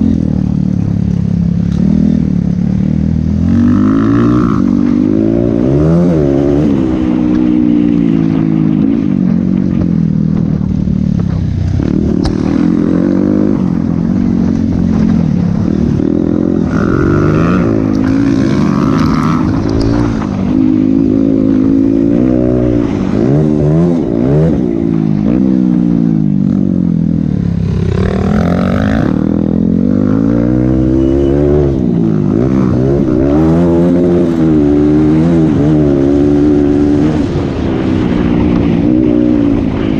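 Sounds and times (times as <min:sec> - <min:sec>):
motocross bike engine revving: 0:11.7 - 0:39.9.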